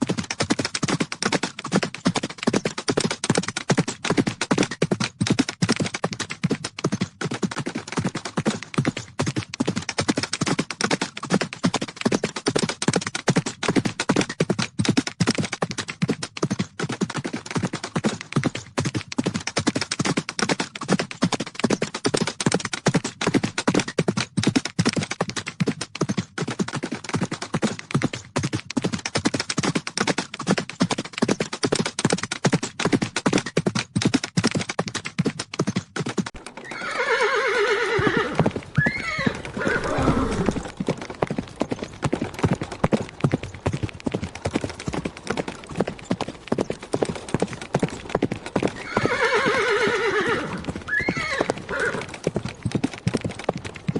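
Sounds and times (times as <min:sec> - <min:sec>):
horses galloping hooves: 0:00.0 - 0:53.9
horse neighing: 0:36.6 - 0:40.8, 0:48.8 - 0:52.1.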